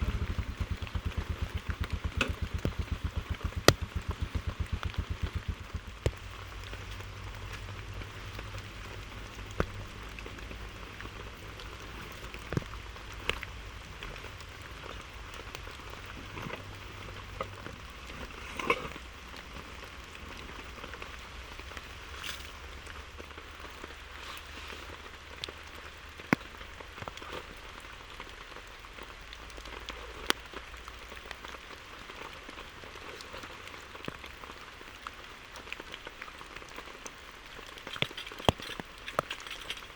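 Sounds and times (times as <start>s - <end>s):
low steady hum: 0.0s - 26.2s
steady rain falling: 0.0s - 39.9s.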